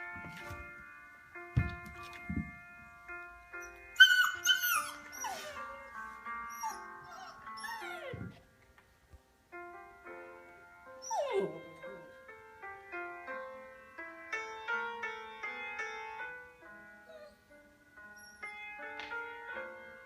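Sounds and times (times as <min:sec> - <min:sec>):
slow calming music: 0:00.0 - 0:20.0
dog whining: 0:03.6 - 0:05.9, 0:06.5 - 0:08.4, 0:11.0 - 0:12.1, 0:17.1 - 0:17.4, 0:18.2 - 0:18.5.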